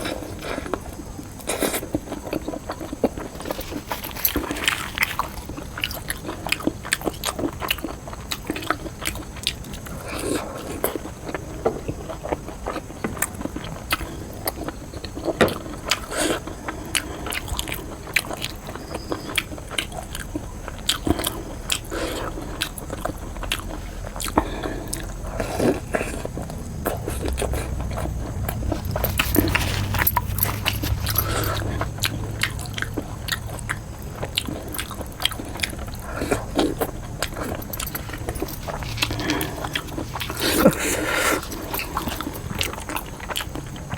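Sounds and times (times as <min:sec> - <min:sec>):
mouth chewing food: 0:00.0 - 0:43.9
low steady rumble: 0:20.8 - 0:43.9.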